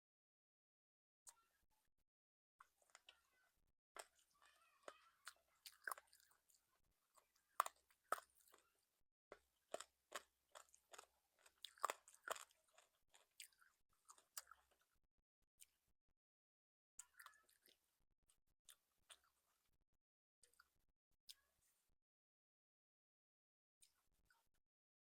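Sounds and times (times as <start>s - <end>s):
crunchy chewing of fried food: 2.6s - 3.4s, 4.0s - 15.0s, 17.0s - 17.9s, 18.7s - 19.8s.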